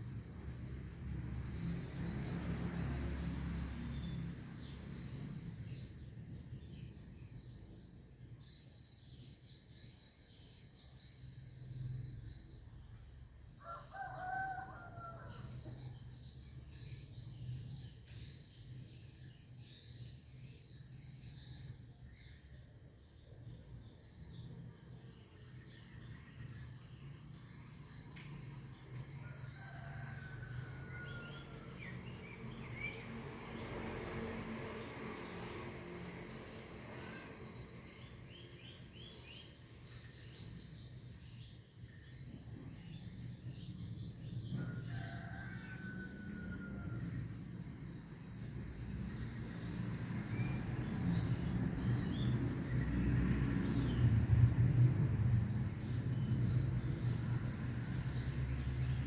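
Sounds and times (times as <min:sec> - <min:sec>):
high chirping of small birds: 0:00.0 - 0:59.0
rooster crowing: 0:13.6 - 0:15.7, 0:29.2 - 0:32.9, 0:44.6 - 0:47.4.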